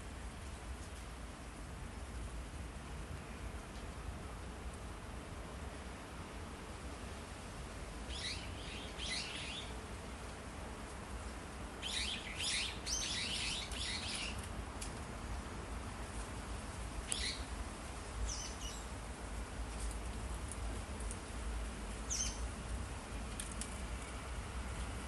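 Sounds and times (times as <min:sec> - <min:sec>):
small birds chirping: 0:08.1 - 0:09.8, 0:11.8 - 0:14.4, 0:17.1 - 0:17.5, 0:18.2 - 0:18.9, 0:22.1 - 0:22.5.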